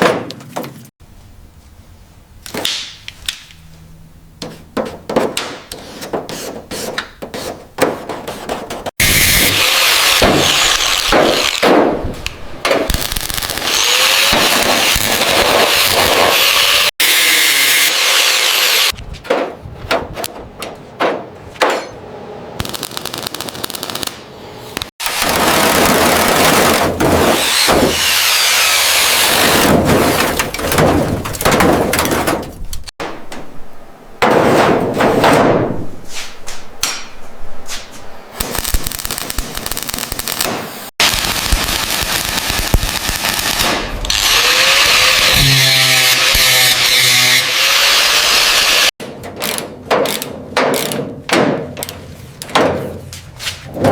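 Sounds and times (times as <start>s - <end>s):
grinding tool noise: 9.0s - 11.6s, 13.6s - 19.0s, 44.1s - 48.9s
metal clanks and knocks: 19.2s - 22.0s, 29.6s - 33.6s, 34.2s - 37.3s.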